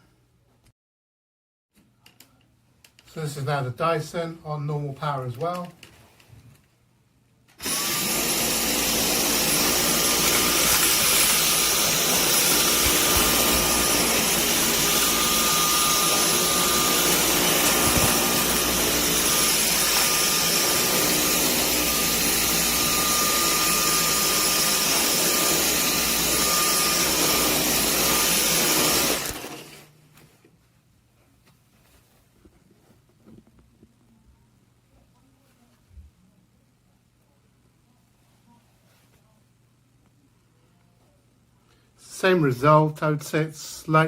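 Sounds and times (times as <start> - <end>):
vacuum cleaner whining: 7.6 - 30.0.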